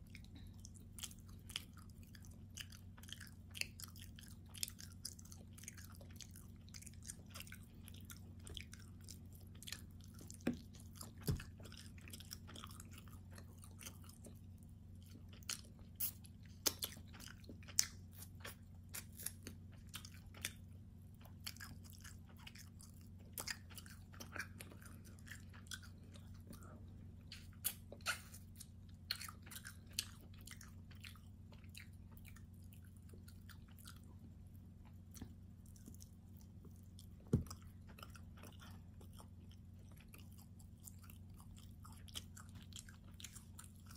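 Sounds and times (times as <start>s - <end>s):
chewing food: 0.0s - 43.9s
steady low hum: 0.0s - 43.9s
mouth clicks and smacks: 27.3s - 28.5s.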